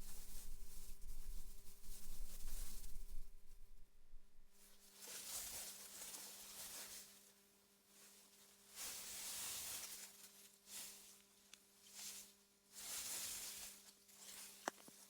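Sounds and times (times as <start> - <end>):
wind gusting through grass: 0.0 - 4.6
faint steady hum: 0.0 - 4.9.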